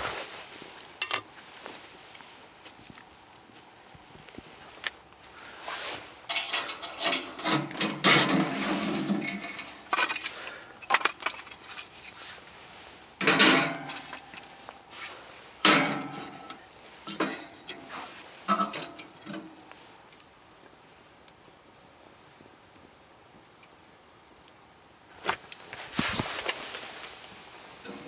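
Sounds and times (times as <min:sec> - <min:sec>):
metal and wood clattering: 0:06.3 - 0:12.2, 0:13.2 - 0:14.7, 0:15.6 - 0:19.7, 0:25.2 - 0:28.0.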